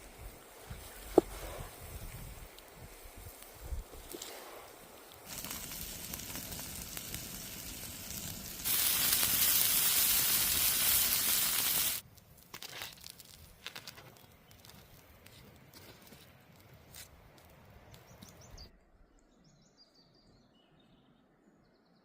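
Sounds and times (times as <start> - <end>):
food sizzling in hot oil: 5.2 - 12.0
clicks and crackles: 11.2 - 18.4.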